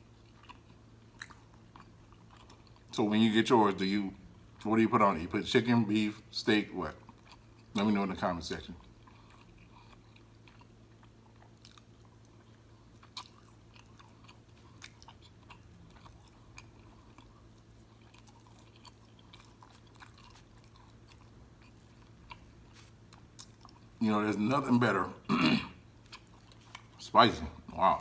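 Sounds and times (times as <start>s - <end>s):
man chewing: 0.0s - 2.9s, 7.0s - 7.9s, 8.8s - 24.0s, 25.8s - 27.0s.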